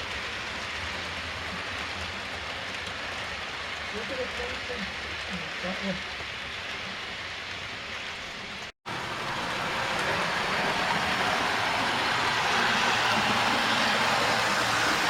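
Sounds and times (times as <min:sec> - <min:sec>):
model train wheels rumbling on rails: 0:00.0 - 0:15.0.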